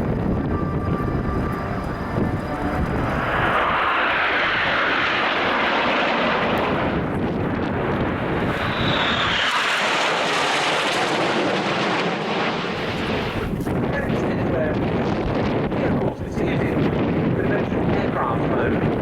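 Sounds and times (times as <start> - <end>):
aircraft flying past: 0.0 - 13.7.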